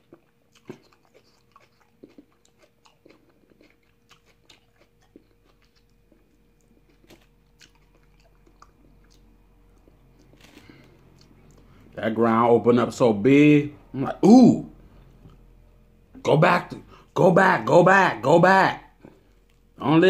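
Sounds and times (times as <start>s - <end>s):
person chewing with wet clicks: 0.0s - 10.4s, 11.0s - 11.7s
faint steady hum: 0.0s - 20.0s.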